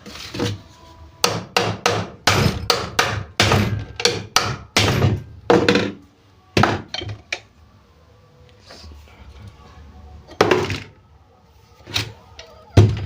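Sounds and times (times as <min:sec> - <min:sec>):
hammer striking metal: 0:01.2 - 0:06.0.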